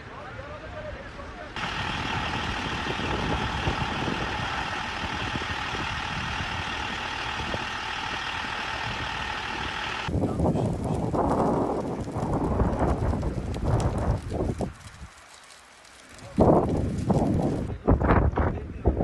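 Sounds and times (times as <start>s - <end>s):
heavy mechanical drone: 1.6s - 11.7s.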